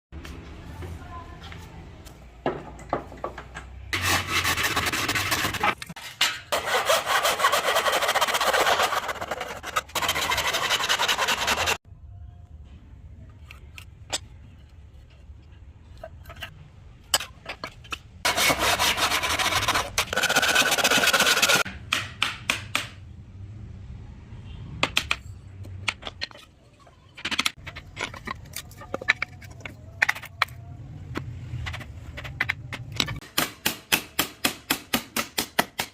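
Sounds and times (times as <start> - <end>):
tool rubbing over wood: 6.5 - 11.8, 18.3 - 21.6.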